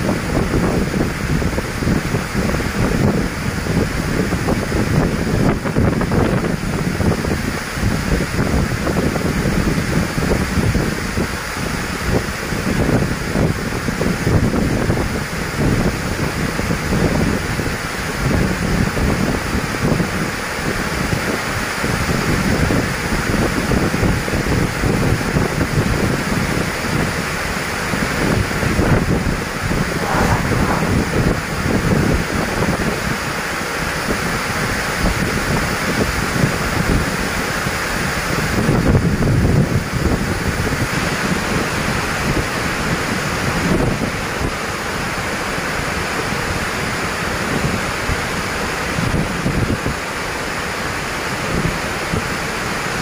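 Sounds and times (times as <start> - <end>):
storm wind buffeting microphone: 0.0 - 19.4, 28.6 - 33.2
steady rushing noise: 29.6 - 33.0.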